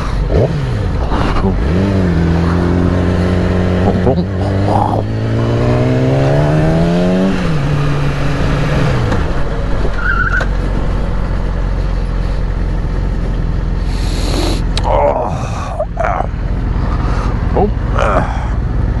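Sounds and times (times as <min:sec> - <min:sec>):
motorcycle engine accelerating: 0:00.0 - 0:19.0
wind and road rush: 0:00.0 - 0:19.0.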